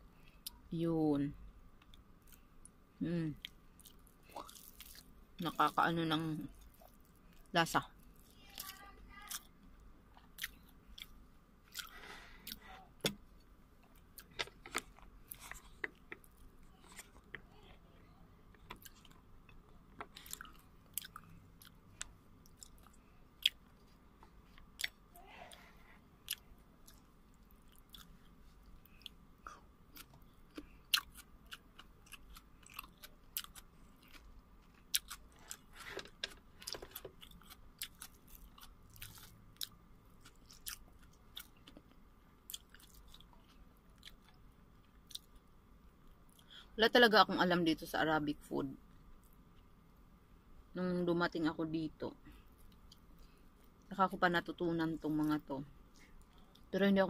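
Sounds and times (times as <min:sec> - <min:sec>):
person chewing: 0:03.4 - 0:05.1, 0:10.2 - 0:13.2, 0:13.8 - 0:45.4.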